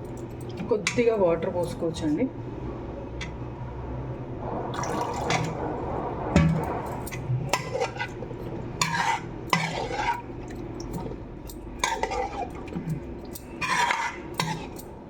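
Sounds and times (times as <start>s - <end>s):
squelching swishes of marinade: 7.5s - 11.2s, 11.8s - 13.0s, 13.6s - 14.8s.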